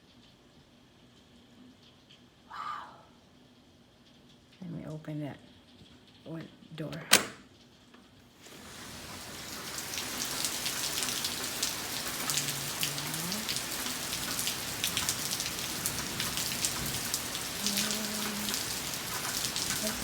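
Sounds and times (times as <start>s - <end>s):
raindrops crackling: 7.6s - 20.0s
heavy rain pouring: 8.4s - 20.0s.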